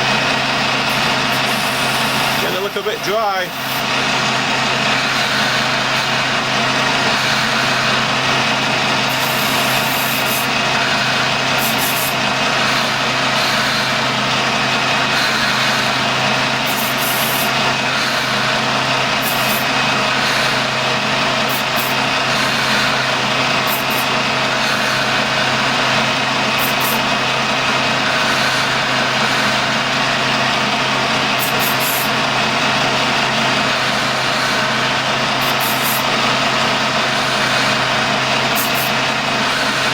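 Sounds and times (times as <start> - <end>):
lathe humming: 0.0 - 39.9
short high hissing bursts: 0.9 - 2.6.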